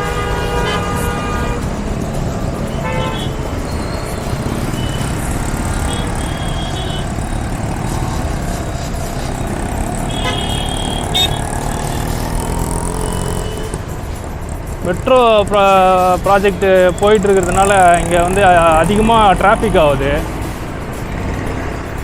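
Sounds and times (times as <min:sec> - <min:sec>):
vehicle horn toots: 0:00.0 - 0:14.0
traffic engines and road noise: 0:00.0 - 0:22.0.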